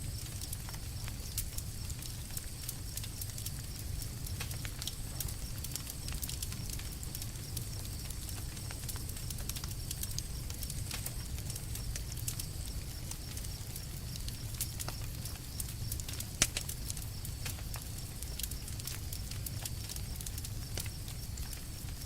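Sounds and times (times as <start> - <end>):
crackling campfire wood: 0.0 - 22.0
low fire rumble: 0.0 - 22.0.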